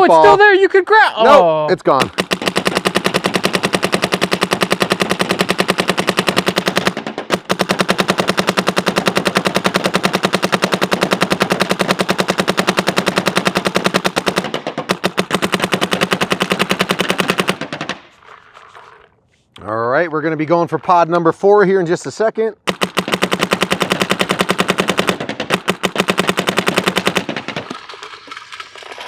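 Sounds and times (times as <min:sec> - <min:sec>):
paintball marker rapid firing: 0:02.0 - 0:18.2, 0:22.6 - 0:28.1.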